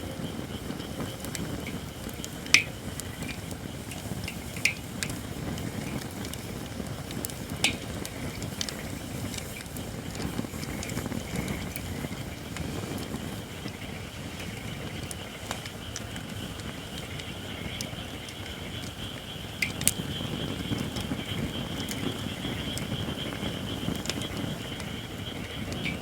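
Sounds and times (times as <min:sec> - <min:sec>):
campfire low rumble: 0:00.0 - 0:26.0
fire crackling: 0:00.0 - 0:26.0
sharp wood pops: 0:07.6 - 0:09.7.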